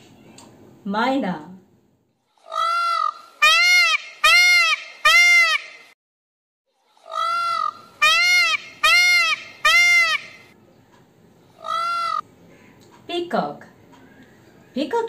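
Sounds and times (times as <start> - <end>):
peacock calling: 2.4 - 6.0, 6.8 - 10.6, 11.5 - 12.8.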